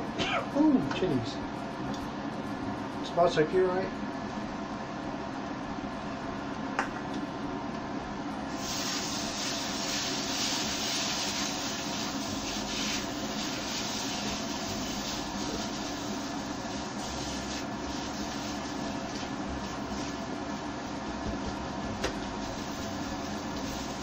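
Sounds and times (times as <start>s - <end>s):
paste sizzling in a wok: 8.5s - 21.1s, 22.3s - 24.0s.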